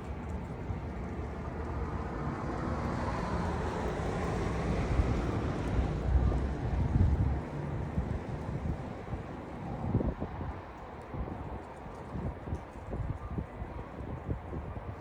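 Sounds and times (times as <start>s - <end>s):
wind buffeting microphone: 3.4s - 15.0s.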